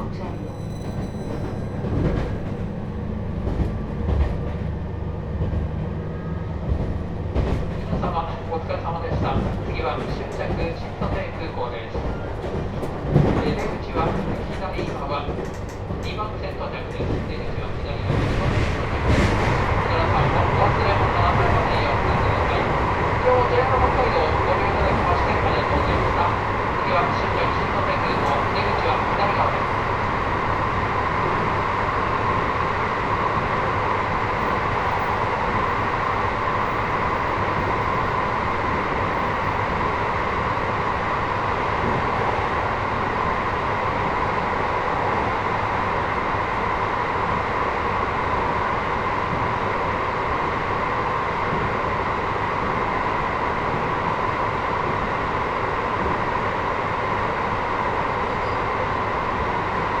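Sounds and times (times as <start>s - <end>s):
train motor hum: 0.0s - 19.0s
train running rumble: 0.0s - 46.0s.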